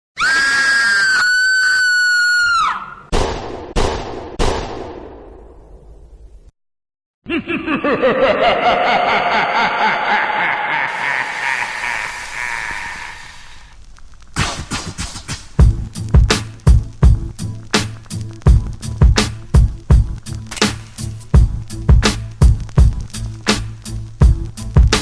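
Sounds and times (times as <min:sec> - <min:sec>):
high-pitched scream: 0:00.2 - 0:03.1, 0:08.6 - 0:13.7.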